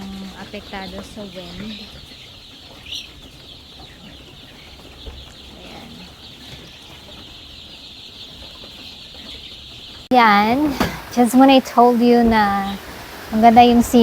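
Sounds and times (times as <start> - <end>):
chicks peeping and clucking: 0.0 - 14.0.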